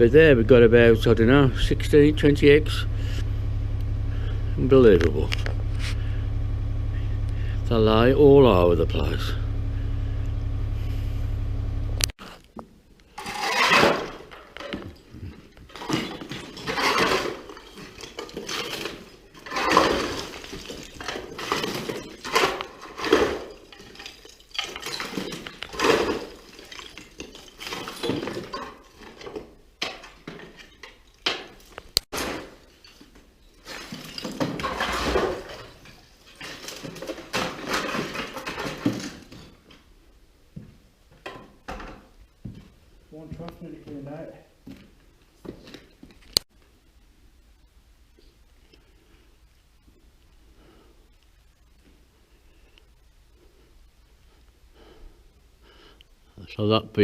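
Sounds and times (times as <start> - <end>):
steady low hum: 0.0 - 12.2
objects clinking and scraping: 13.1 - 39.8.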